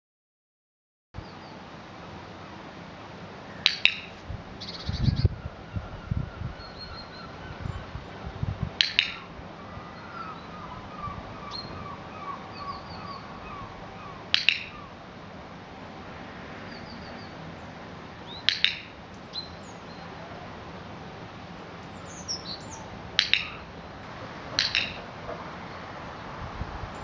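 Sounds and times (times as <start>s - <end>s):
songbirds chirping and trilling: 1.2s - 27.0s
sharp double click: 3.6s - 4.2s, 8.8s - 9.2s, 14.3s - 14.7s, 18.4s - 18.9s, 23.2s - 23.6s, 24.5s - 25.0s.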